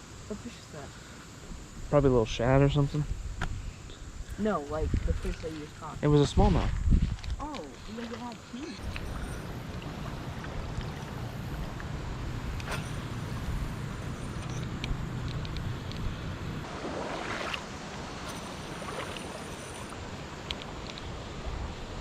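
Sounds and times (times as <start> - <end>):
wind rumbling on microphone: 1.5 - 22.0
river water rushing: 8.8 - 22.0
light clicks: 14.3 - 16.1.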